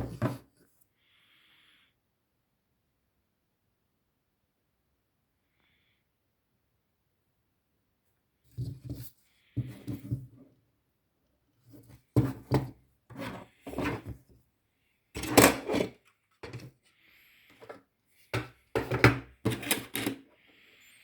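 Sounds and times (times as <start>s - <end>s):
hard parts rubbing and scraping: 18.4s - 20.3s.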